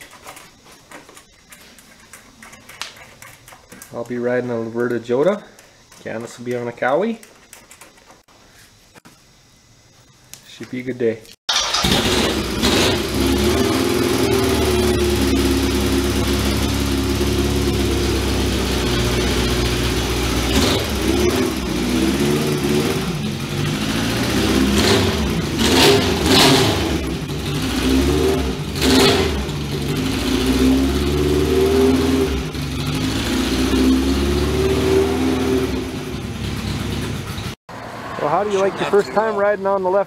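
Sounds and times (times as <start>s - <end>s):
motorcycle engines revving: 11.7s - 39.6s.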